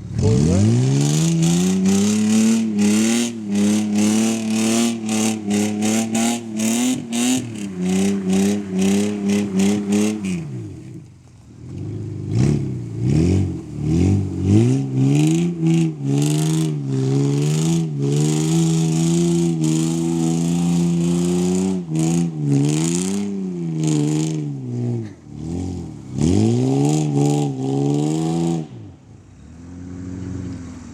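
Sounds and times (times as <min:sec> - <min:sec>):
truck engine revving: 0:00.0 - 0:28.8.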